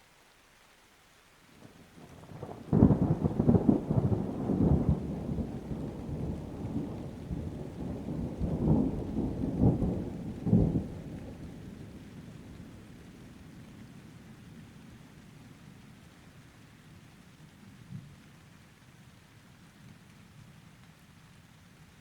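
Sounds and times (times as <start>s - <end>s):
rain: 0.0s - 22.0s
thunder clap and rumble: 2.2s - 11.7s.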